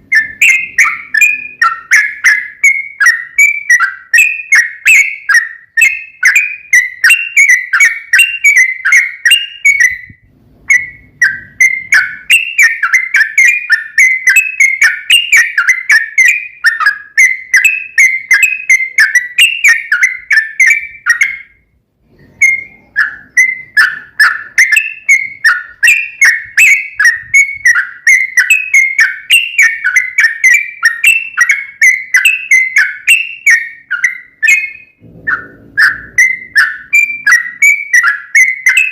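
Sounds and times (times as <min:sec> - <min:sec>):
bulbul chattering song: 0:00.0 - 0:38.9.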